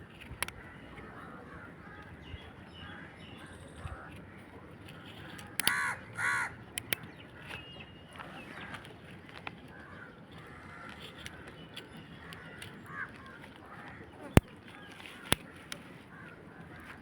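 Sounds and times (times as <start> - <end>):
light clicks: 4.9 - 5.8, 6.7 - 9.6
harsh bird calls: 5.1 - 8.9.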